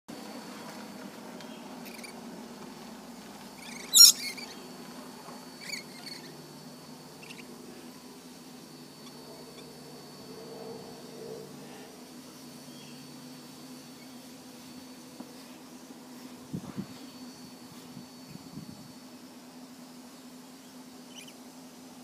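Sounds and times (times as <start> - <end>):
steady low hum: 0.1 - 22.0
small birds chirping: 1.4 - 2.3, 3.6 - 4.8, 5.6 - 6.4, 7.0 - 8.1, 9.0 - 13.2, 20.0 - 21.5.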